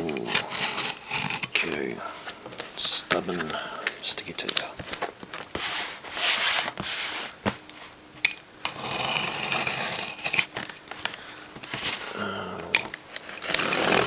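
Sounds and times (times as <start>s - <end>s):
packaging crinkling: 0.0s - 14.0s
tape ripping off parcel: 0.0s - 14.0s.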